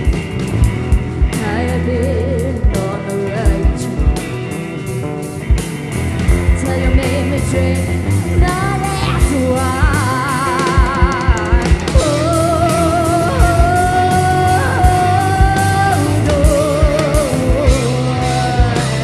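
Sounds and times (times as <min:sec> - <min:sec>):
drum beat: 0:00.0 - 0:01.8, 0:05.4 - 0:07.4, 0:08.4 - 0:19.0
rock band playing: 0:00.0 - 0:19.0
person singing: 0:01.3 - 0:04.9, 0:06.5 - 0:19.0.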